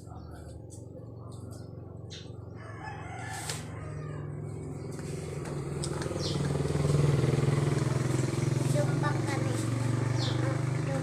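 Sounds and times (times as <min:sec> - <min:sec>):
rooster crowing: 0:02.5 - 0:04.7
small engine running: 0:04.2 - 0:11.0.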